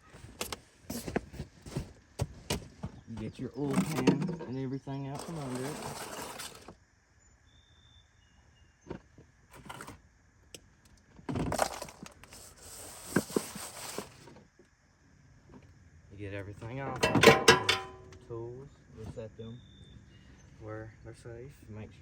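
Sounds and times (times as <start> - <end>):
scraping and rustling: 5.2 - 6.8, 9.5 - 10.0, 11.3 - 14.4
tools clinking and knocking: 16.9 - 18.2.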